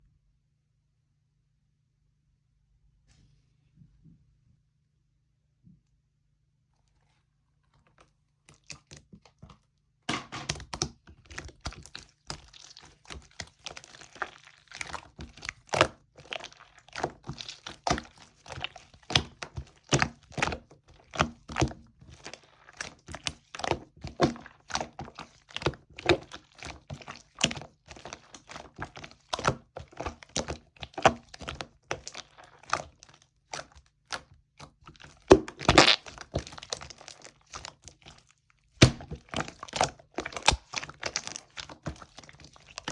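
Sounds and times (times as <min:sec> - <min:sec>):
slime squished by hand popping: 0:35.3 - 0:37.7, 0:38.8 - 0:42.0.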